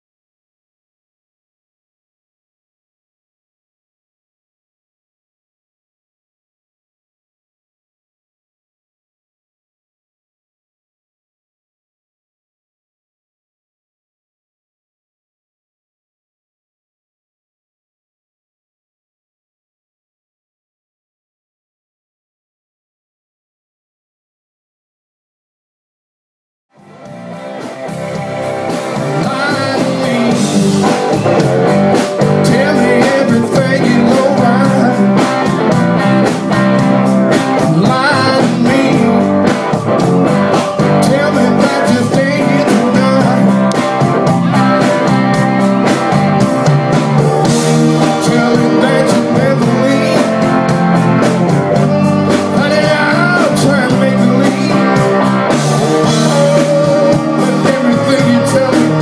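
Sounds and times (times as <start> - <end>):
guitar: 26.7 - 59.0
live blues band playing: 26.8 - 59.0
steady drum beat: 26.8 - 59.0.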